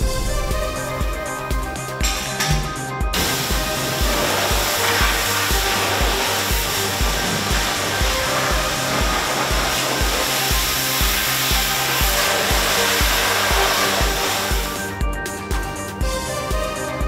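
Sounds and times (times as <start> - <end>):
background music with beat: 0.0 - 17.0
car wash equipment rushing: 3.1 - 14.9.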